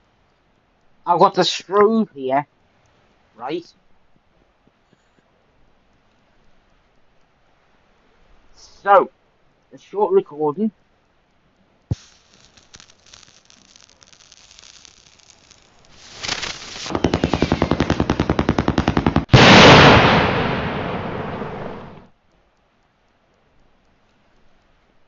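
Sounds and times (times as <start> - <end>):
rapid rattle of pops: 11.9 - 19.6
firework pops and crackling: 11.9 - 22.0
firework rising hiss: 11.9 - 22.0
loud firework burst: 11.9 - 22.1.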